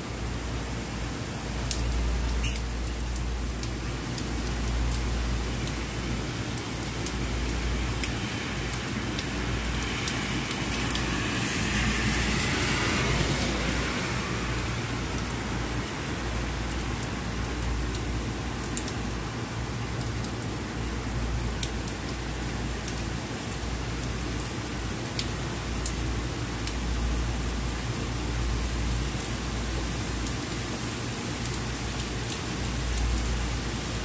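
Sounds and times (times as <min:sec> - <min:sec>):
steady rain falling: 0:00.0 - 0:34.0
car tyres hissing on wet road: 0:07.1 - 0:17.4.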